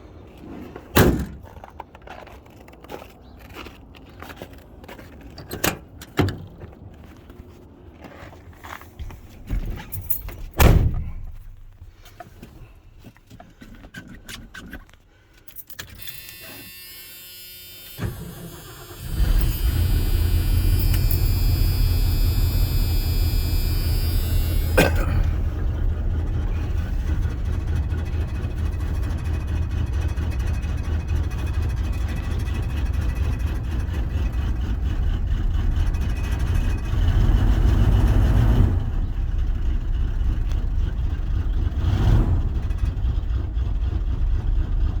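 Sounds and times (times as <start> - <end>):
engine blip: 16.0 - 28.0
truck engine running: 16.2 - 45.0.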